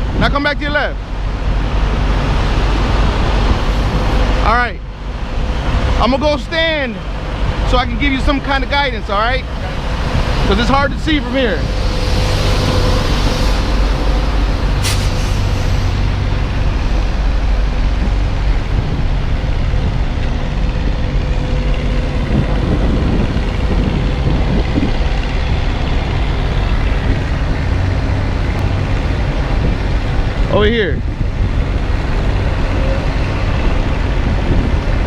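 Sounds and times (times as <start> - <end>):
diesel truck engine running: 0.0 - 35.0
air hiss: 11.7 - 16.0.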